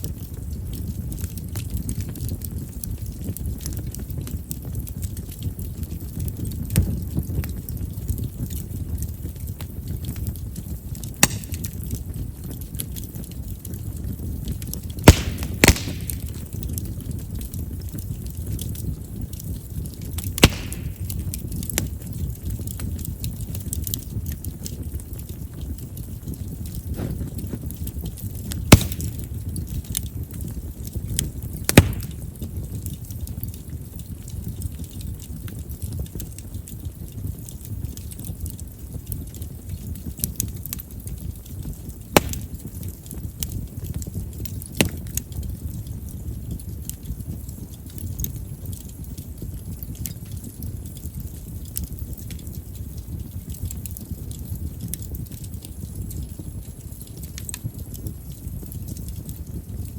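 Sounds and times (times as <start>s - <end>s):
bonfire flames crackling: 0.0s - 59.9s
burning wood popping: 0.0s - 59.9s
loud wood pops: 11.2s - 11.8s, 15.0s - 16.5s, 20.3s - 21.3s, 28.7s - 29.3s, 31.7s - 32.3s, 42.2s - 42.6s.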